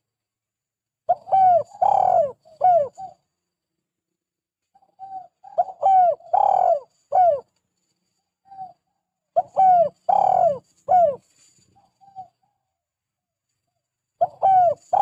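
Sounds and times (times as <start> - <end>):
dove cooing: 1.1 - 3.2, 4.8 - 7.5, 9.4 - 12.4, 14.2 - 15.0.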